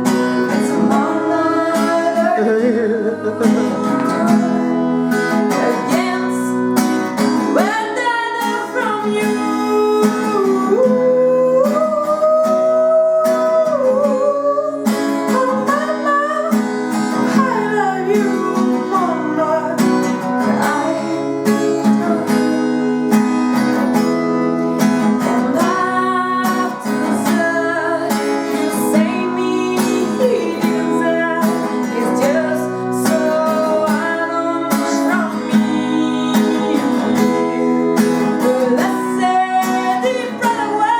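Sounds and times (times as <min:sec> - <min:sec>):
person singing: 0:00.0 - 0:24.0, 0:24.7 - 0:40.9
strummed acoustic guitar: 0:00.0 - 0:40.9.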